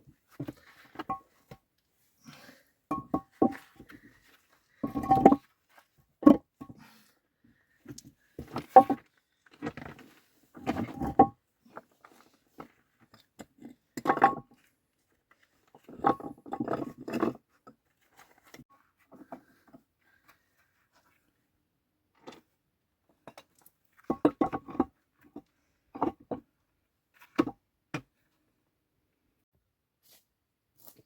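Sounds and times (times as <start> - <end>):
hard objects knocking and scraping: 2.9 - 4.1, 4.8 - 5.4.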